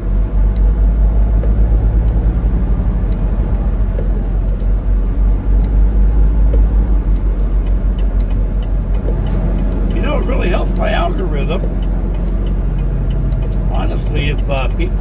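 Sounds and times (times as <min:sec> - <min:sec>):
diesel truck engine rumble: 0:00.0 - 0:15.0
road noise: 0:00.0 - 0:15.0
faint light ticks: 0:01.4 - 0:02.3, 0:06.5 - 0:10.0.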